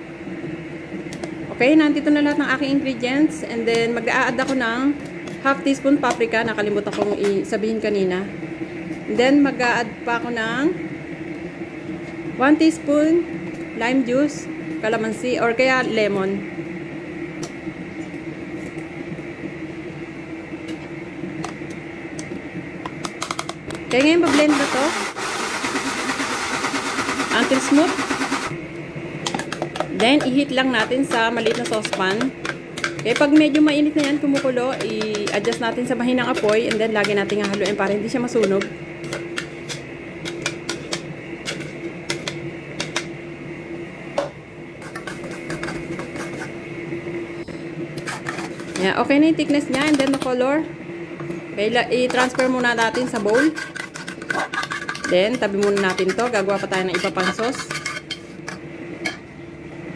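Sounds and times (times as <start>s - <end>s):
steady hum: 0.0s - 59.9s
electric blender running: 23.8s - 28.6s.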